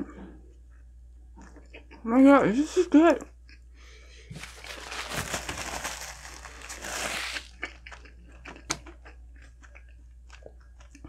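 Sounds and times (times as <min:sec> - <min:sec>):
close chewing of a burger: 0:03.4 - 0:11.0.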